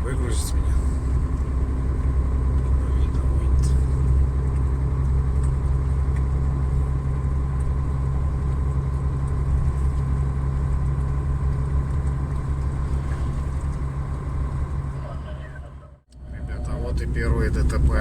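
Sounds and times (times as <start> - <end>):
road noise: 0.0 - 18.0
truck diesel engine droning: 0.0 - 18.0.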